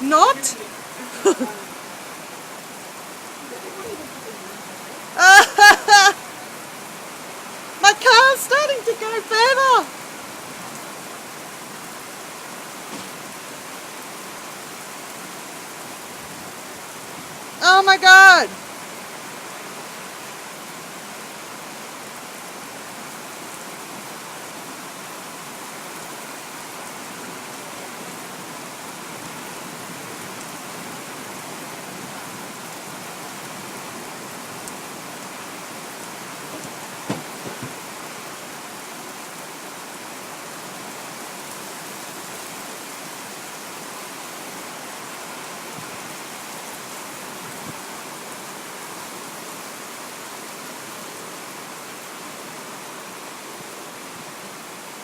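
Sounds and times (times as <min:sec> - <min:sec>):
heavy rain falling: 0:00.0 - 0:55.0
brief knocks: 0:36.5 - 0:37.8.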